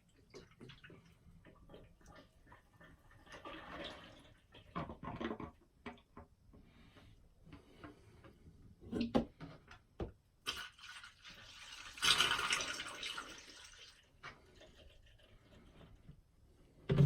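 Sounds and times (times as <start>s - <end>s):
liquid pouring into a funnel: 0.0s - 4.9s, 10.4s - 15.8s.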